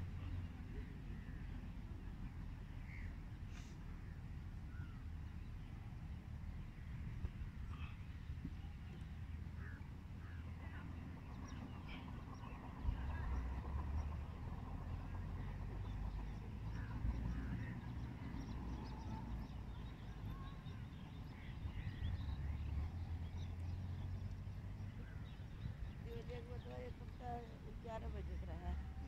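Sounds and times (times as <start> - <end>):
steady low rumble: 0.0 - 29.0
birds chirping: 4.7 - 29.0.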